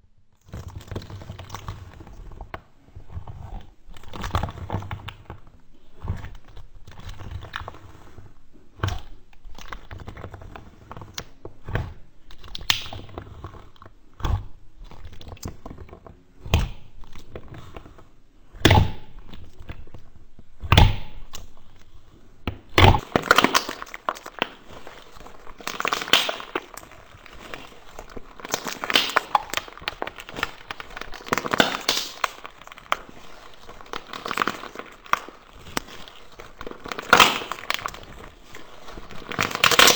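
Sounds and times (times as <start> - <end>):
slime crackling: 0.4 - 39.9
slime popping and clicking: 12.4 - 13.1, 20.6 - 21.5, 22.5 - 39.9.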